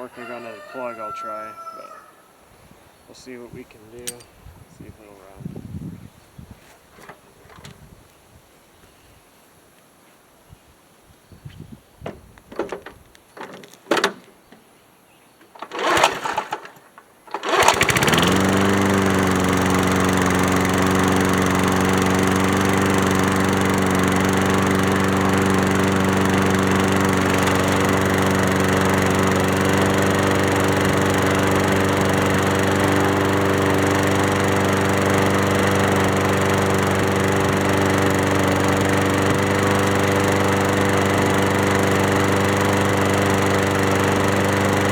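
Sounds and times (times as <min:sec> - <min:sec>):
recoil starter pulls: 0:04.0 - 0:04.3, 0:15.4 - 0:44.9
lawn mower engine running: 0:15.4 - 0:44.9.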